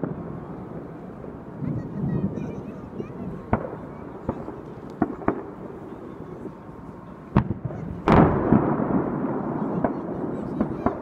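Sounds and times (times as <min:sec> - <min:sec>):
heavy echoing boom: 0:00.0 - 0:02.5, 0:07.3 - 0:11.0
distant firework shells bursting: 0:03.4 - 0:11.0.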